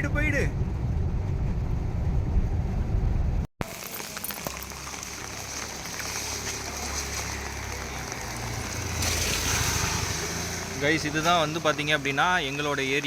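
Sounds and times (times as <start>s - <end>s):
vehicle rumbling: 0.0s - 13.0s
steady rain falling: 3.6s - 11.7s.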